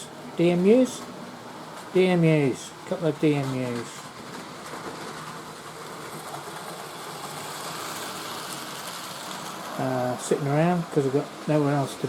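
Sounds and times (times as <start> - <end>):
model train motor whirring: 4.3 - 10.3.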